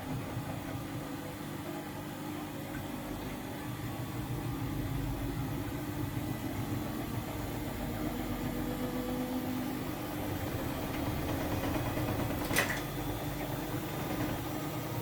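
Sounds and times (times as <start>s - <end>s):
washing machine motor humming: 0.0s - 15.0s.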